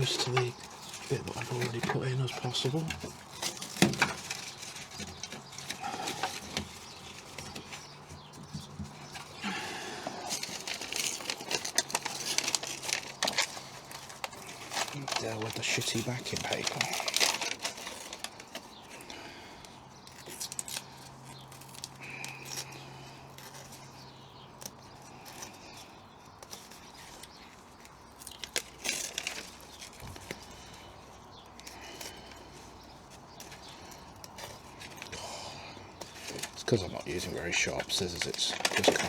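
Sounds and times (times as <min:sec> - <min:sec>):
paper crinkling and tearing: 0:00.0 - 0:08.1, 0:08.7 - 0:25.8, 0:26.4 - 0:39.0
scissors ripping paper: 0:10.3 - 0:19.0, 0:36.0 - 0:39.0.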